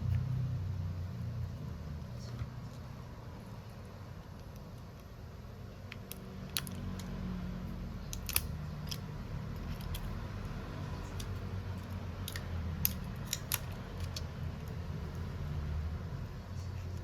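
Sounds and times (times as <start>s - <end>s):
low steady hum: 0.0s - 17.0s
small tools clicking on phone: 8.0s - 15.3s.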